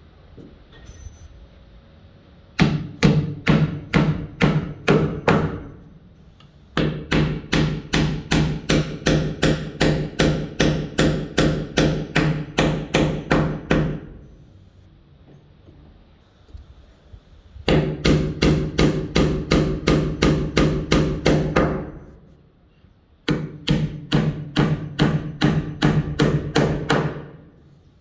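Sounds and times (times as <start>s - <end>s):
hammer driving nail into wood: 6.8s - 14.1s, 17.7s - 21.9s, 23.3s - 27.4s.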